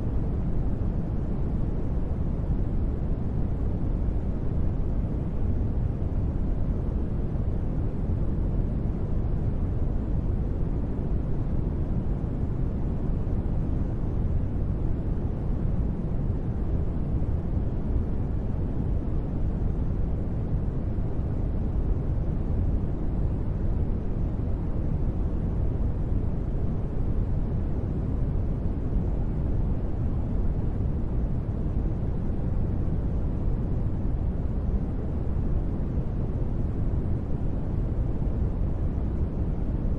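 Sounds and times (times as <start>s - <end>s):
low ambient noise bed: 0.0s - 39.9s.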